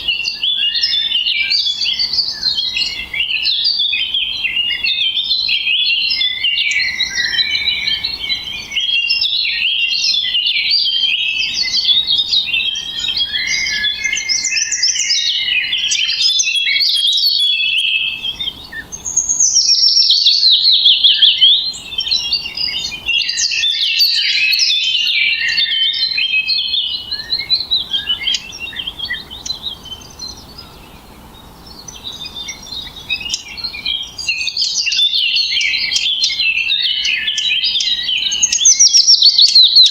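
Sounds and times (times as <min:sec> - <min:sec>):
songbirds chirping and twittering: 0:00.0 - 0:39.9
bird call rapid falling notes: 0:09.9 - 0:26.4.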